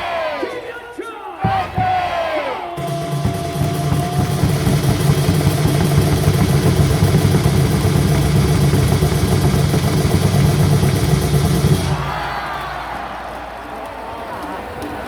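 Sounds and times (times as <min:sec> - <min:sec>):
crowd din: 0:01.4 - 0:15.0
held note: 0:02.8 - 0:12.5
rapid clatter: 0:02.8 - 0:12.6.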